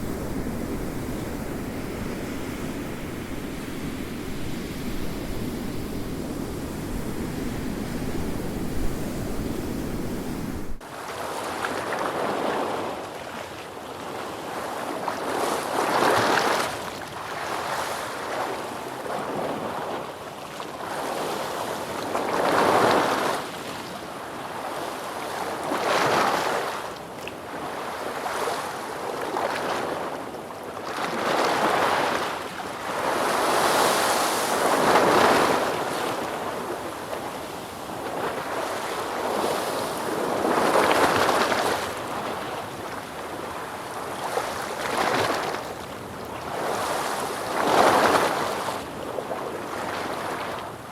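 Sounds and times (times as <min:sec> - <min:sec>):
ocean waves breaking: 0:00.0 - 0:10.8.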